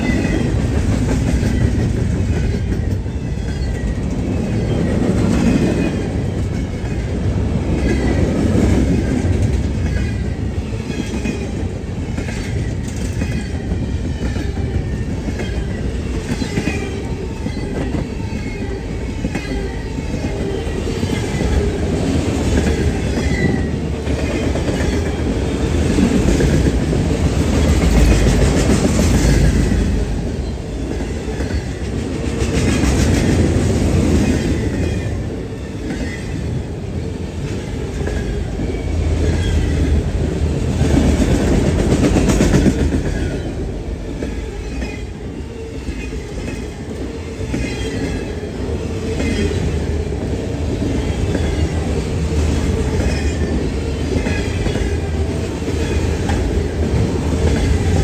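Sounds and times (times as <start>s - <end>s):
clickety-clack over rail joints: 0.0s - 58.0s
rumble of steel wheels on rail: 0.0s - 58.0s.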